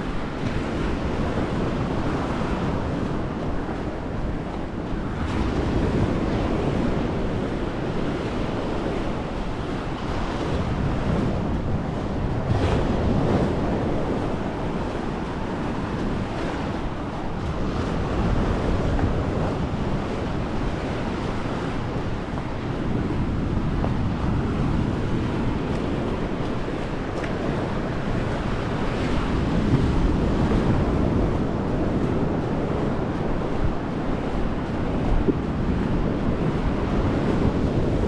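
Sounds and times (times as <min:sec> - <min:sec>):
sea surf washing onto beach: 0:00.0 - 0:38.0
wind buffeting microphone: 0:00.0 - 0:38.0.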